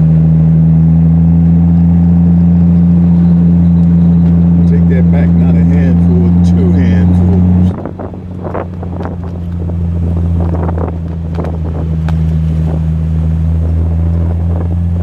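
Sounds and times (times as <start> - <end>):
car engine droning: 0.0 - 15.0
wind noise: 7.0 - 15.0.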